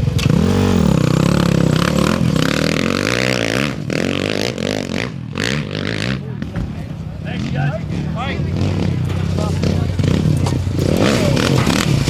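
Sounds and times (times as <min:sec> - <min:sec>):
motorcycle engine revving: 0:00.0 - 0:04.4.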